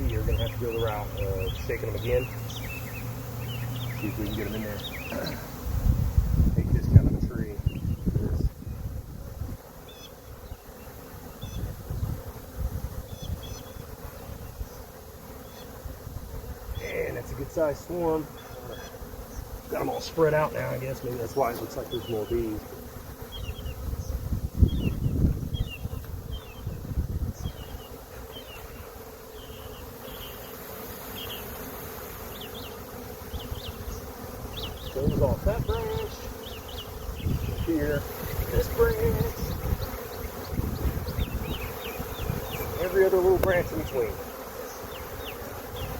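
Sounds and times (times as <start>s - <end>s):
bee swarm buzzing: 0.0s - 45.9s.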